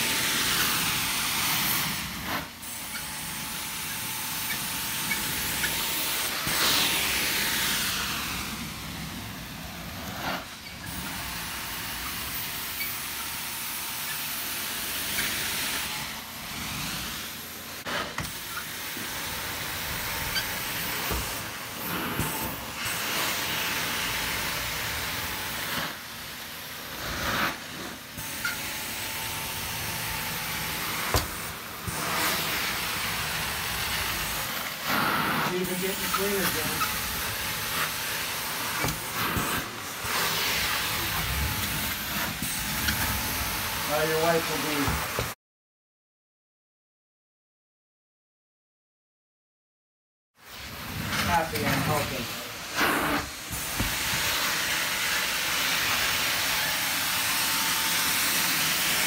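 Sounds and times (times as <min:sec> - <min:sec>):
carpet cleaner suction and spray hiss: 0:00.0 - 0:45.4, 0:50.4 - 0:59.0.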